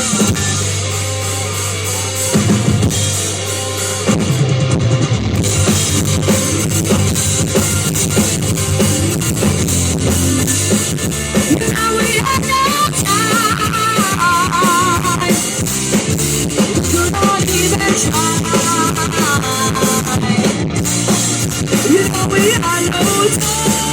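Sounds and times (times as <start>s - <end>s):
bass guitar: 0.0s - 23.9s
drum kit: 0.0s - 23.9s
electric guitar: 0.0s - 23.9s
person singing: 11.5s - 15.6s, 16.8s - 20.6s, 21.8s - 23.9s.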